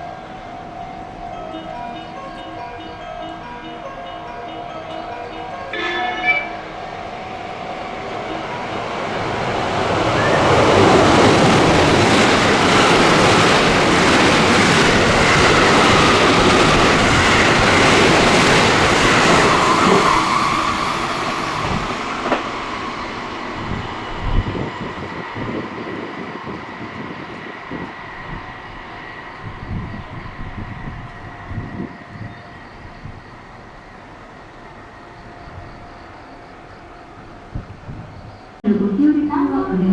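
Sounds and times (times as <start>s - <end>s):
train passing at speed: 0.0s - 39.9s
wheel clacks over rail joints: 21.6s - 22.8s.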